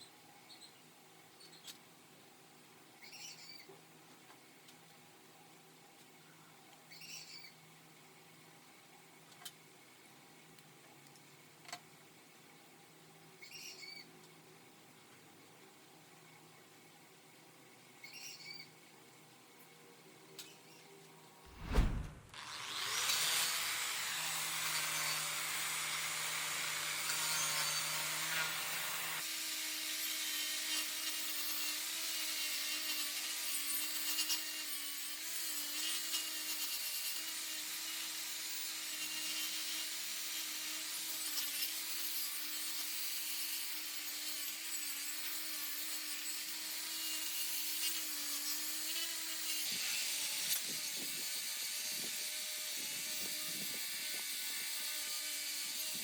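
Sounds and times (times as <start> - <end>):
low hum: 21.5 - 22.3.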